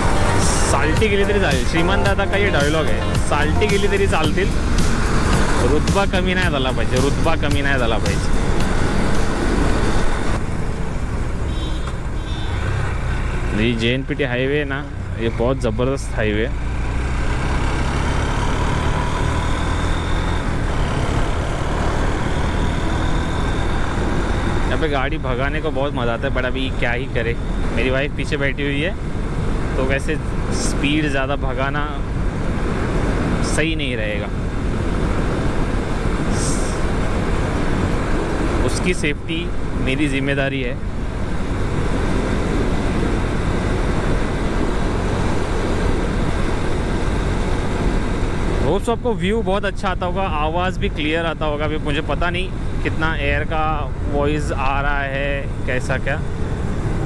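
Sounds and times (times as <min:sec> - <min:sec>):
road noise: 0:00.0 - 0:57.0.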